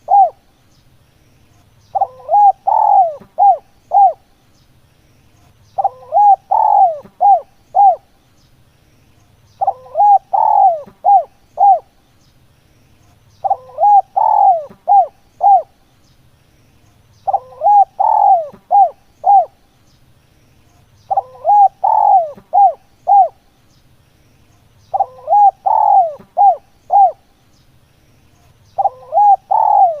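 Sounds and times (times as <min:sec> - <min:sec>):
dove cooing: 0:00.0 - 0:00.5, 0:01.9 - 0:04.2, 0:05.8 - 0:08.1, 0:09.6 - 0:12.0, 0:13.4 - 0:15.8, 0:17.2 - 0:19.6, 0:21.1 - 0:23.4, 0:24.9 - 0:27.3, 0:28.8 - 0:30.0.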